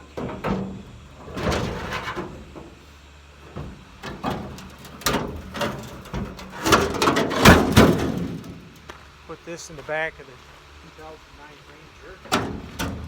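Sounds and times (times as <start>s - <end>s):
sheet metal scraping and clanking: 0.0s - 8.8s, 12.2s - 13.0s.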